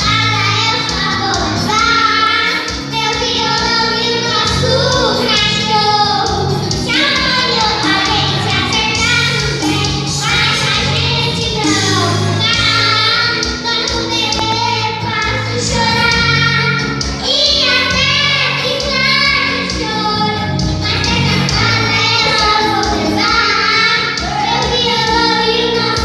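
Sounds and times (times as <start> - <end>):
instrumental accompaniment: 0.0 - 26.0
high voice singing: 12.4 - 26.0.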